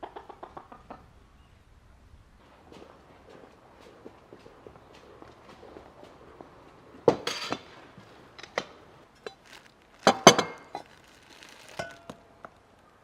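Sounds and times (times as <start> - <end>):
dishes and utensils clinking: 7.1 - 7.7, 10.1 - 10.9, 11.7 - 12.3.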